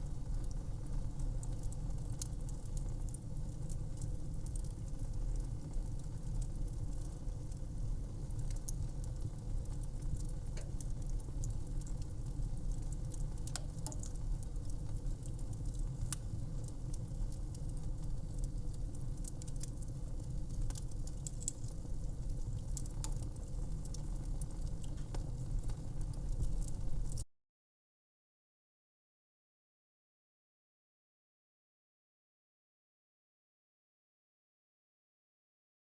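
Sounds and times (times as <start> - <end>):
wood fire crackling and popping: 0.0 - 27.2.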